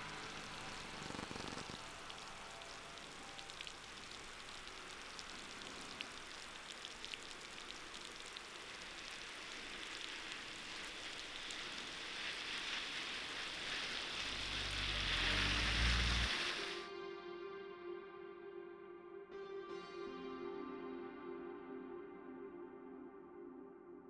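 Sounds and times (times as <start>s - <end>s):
melting snow dripping: 0.0s - 16.8s
tyres hissing on slushy road: 0.0s - 16.9s
vehicle engine rumble: 13.5s - 16.6s.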